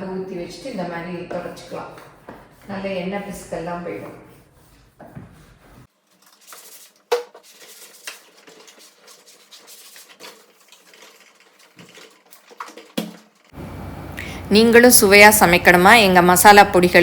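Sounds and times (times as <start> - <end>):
faint rubbing: 0.5 - 12.4.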